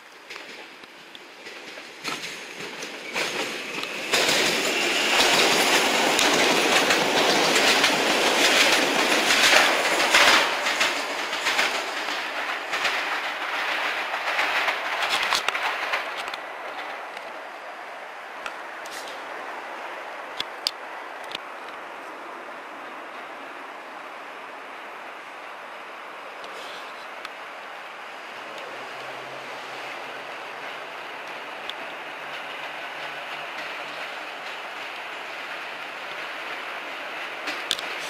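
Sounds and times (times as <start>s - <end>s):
train wheels clattering over joints: 0.2s - 17.4s, 28.4s - 38.0s.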